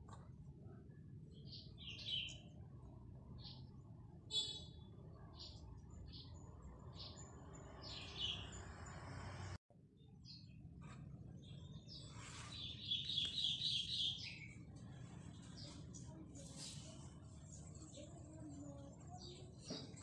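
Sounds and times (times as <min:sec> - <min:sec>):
birds chirping: 0:01.3 - 0:02.6, 0:03.4 - 0:09.6, 0:11.3 - 0:20.0
rapid high bird chirps: 0:11.8 - 0:14.6.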